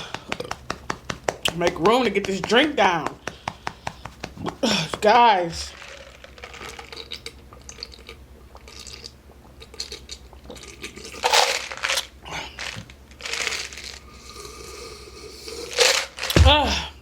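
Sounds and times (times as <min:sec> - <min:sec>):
slurping drink through a straw: 0:05.7 - 0:16.4.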